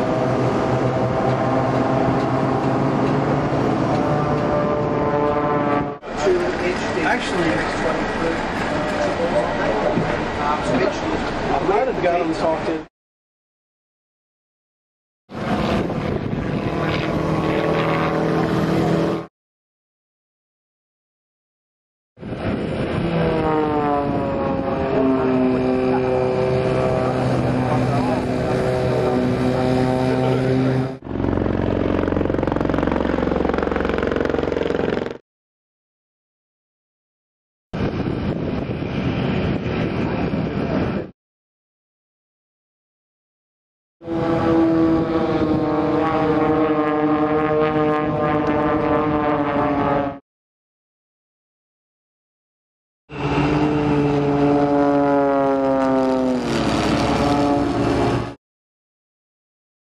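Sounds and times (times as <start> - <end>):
aircraft engine steady tones: 0.0 - 12.8, 22.2 - 35.2, 44.0 - 50.2, 53.1 - 58.4
engine with fast even pulse: 0.0 - 12.8, 23.0 - 35.2, 44.0 - 50.2, 53.1 - 58.4.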